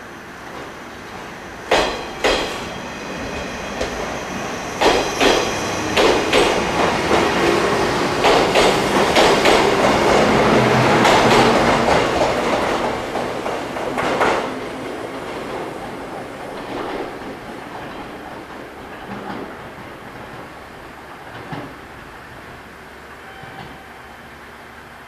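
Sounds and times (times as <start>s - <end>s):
train running rumble: 0.4s - 14.5s
train wheels clacking over rail joints: 1.7s - 2.8s, 4.8s - 7.6s, 8.2s - 14.5s.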